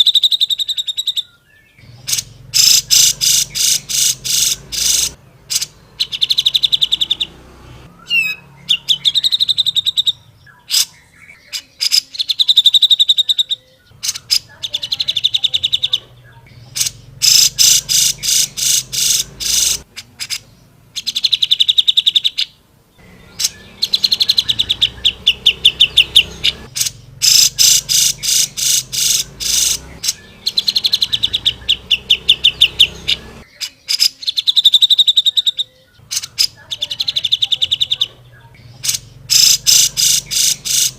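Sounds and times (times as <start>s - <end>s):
bird singing trilled chattering: 0.0s - 40.9s.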